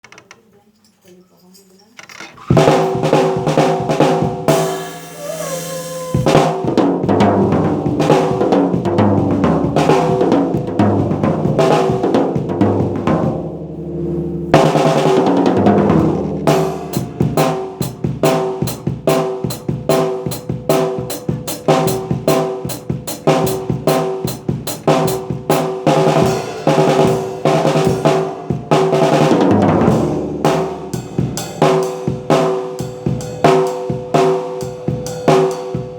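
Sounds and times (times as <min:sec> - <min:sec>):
drum kit groove: 0:02.4 - 0:35.9
cymbal crash: 0:04.5 - 0:06.6.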